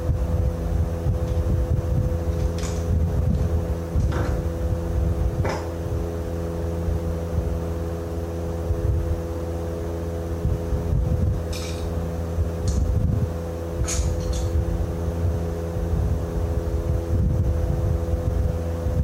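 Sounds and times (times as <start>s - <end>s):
low machine hum: 0.0s - 19.0s
short metallic clinks: 11.5s - 12.0s.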